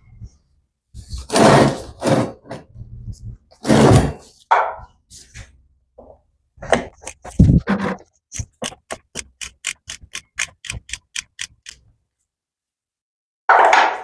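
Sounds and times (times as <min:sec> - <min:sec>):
ratchet wrench clicking: 0:08.4 - 0:11.8.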